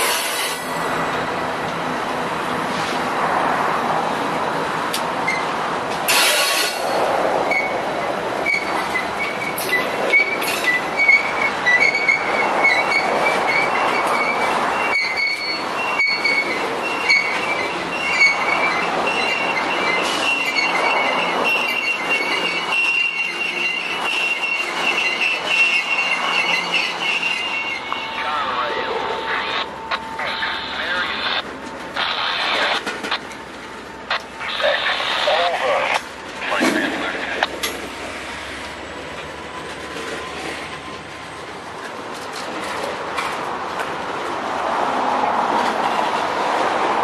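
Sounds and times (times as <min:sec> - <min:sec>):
wheels squealing against rail: 0:00.0 - 0:01.1, 0:05.2 - 0:05.5, 0:06.1 - 0:31.4
freight cars rumbling: 0:00.0 - 0:47.0.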